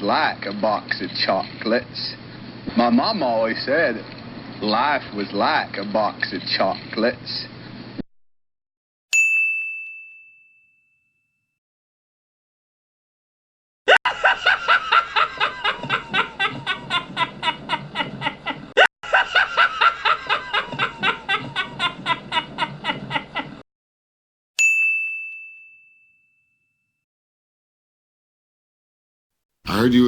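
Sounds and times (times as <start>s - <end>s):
bell ding: 9.2s - 11.5s, 24.6s - 27.0s
rapid rhythmic laugh: 13.9s - 23.6s.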